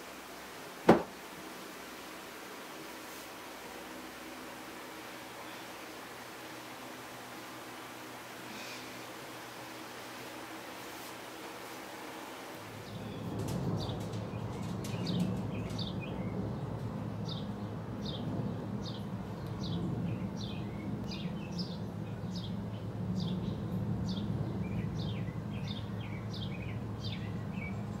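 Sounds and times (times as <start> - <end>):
bird chirping: 12.8 - 16.5.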